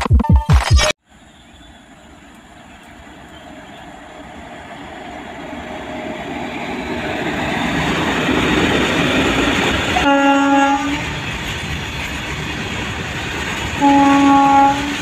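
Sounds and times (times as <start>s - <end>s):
electronic music: 0.0s - 1.0s
train wheels rumbling on rail: 1.2s - 15.0s.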